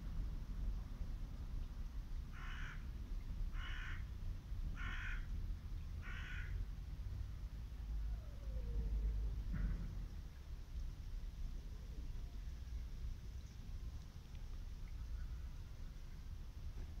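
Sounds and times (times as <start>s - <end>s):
low rumble: 4.2s - 17.0s.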